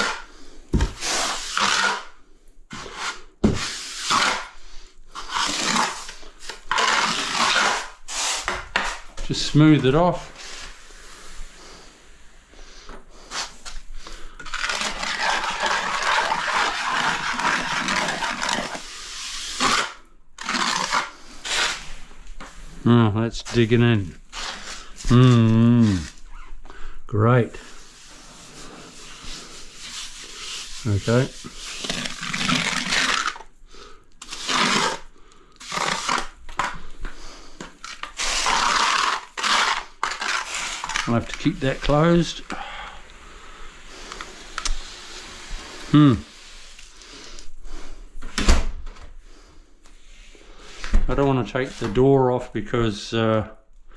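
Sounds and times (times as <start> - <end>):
tool scraping a wall: 0.0 - 10.8, 13.2 - 22.6, 27.6 - 33.5, 34.2 - 36.9, 37.6 - 42.1.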